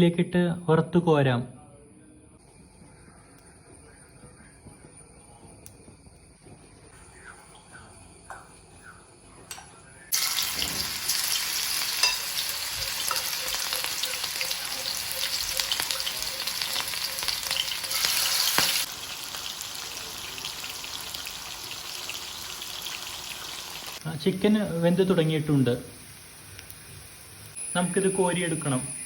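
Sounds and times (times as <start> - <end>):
chicken sizzling in hot oil: 10.1 - 29.0.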